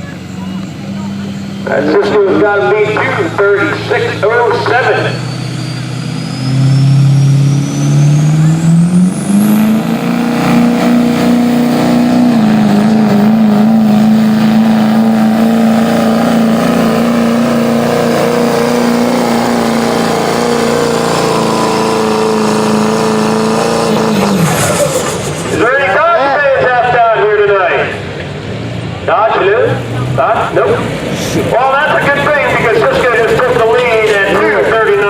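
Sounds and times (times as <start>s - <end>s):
diesel truck engine at full throttle: 0.0s - 35.0s.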